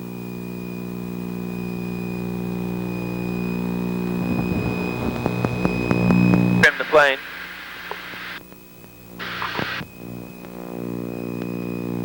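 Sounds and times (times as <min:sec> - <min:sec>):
high-pitched whine: 0:01.3 - 0:08.4
piston aircraft engines droning: 0:02.2 - 0:08.4.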